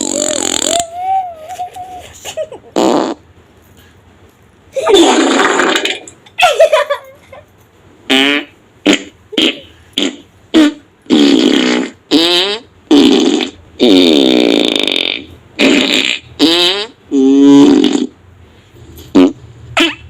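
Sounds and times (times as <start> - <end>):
comedic fart sound effects: 0.0 - 1.0, 2.6 - 3.3, 4.8 - 6.2, 8.1 - 18.2, 19.1 - 20.0.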